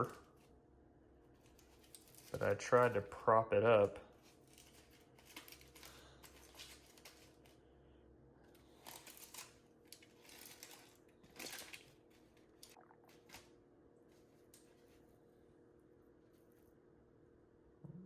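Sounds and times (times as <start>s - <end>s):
foil sandwich wrapper rustling: 1.3s - 3.0s, 4.1s - 7.6s, 8.5s - 15.1s.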